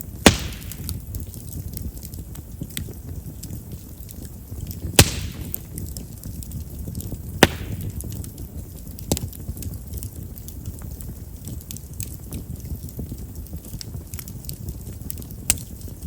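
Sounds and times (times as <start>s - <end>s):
faint crackling: 0.0s - 16.0s
fire flame rumble: 0.0s - 16.0s
loud wood pops: 0.2s - 1.1s, 4.8s - 5.8s, 7.4s - 8.3s.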